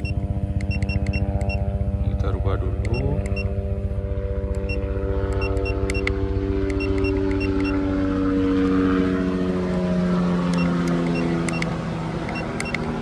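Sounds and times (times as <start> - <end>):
short electronic beeps: 0.0 - 1.6, 2.9 - 3.5, 5.4 - 6.1, 6.7 - 7.8
motor hum: 0.0 - 13.0.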